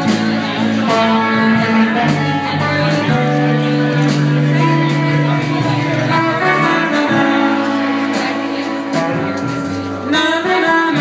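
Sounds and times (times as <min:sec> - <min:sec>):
live band instrumental music: 0:00.0 - 0:11.0.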